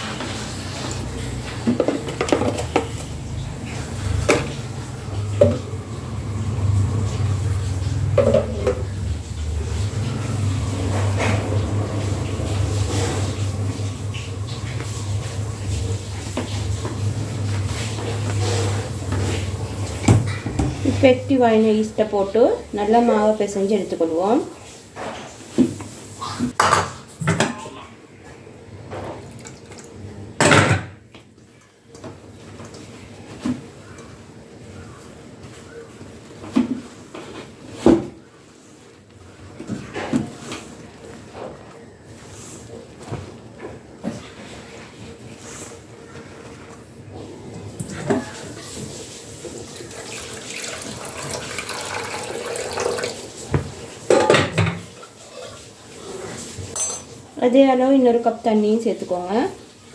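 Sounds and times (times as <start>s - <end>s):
kitchenware clattering: 0.0s - 5.7s, 8.0s - 9.0s, 26.5s - 27.8s, 51.1s - 55.7s, 56.7s - 57.4s
kitchen knocks and handling: 1.5s - 3.1s, 8.2s - 8.9s
water running into a cup: 47.8s - 54.0s.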